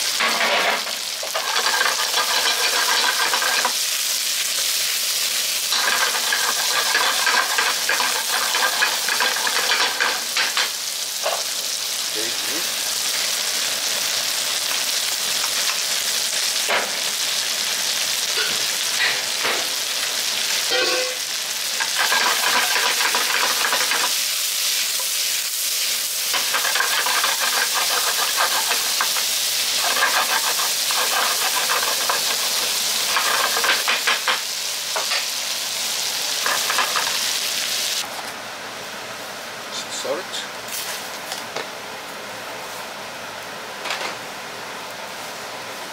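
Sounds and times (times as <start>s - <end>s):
food sizzling in hot oil: 0.0s - 38.1s
spatula scraping and knocking pan: 0.2s - 3.8s, 5.7s - 10.7s, 21.8s - 24.2s, 26.3s - 34.4s, 36.4s - 37.2s.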